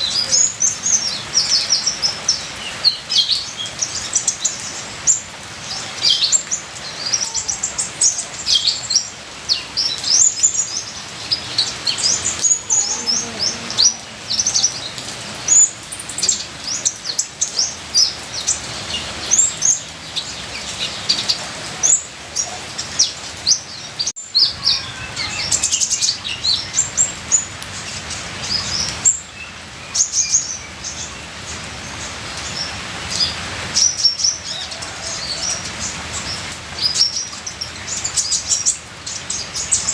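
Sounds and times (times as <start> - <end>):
trickling rain water: 0.0 - 39.9
bird singing high chirps: 22.8 - 31.2.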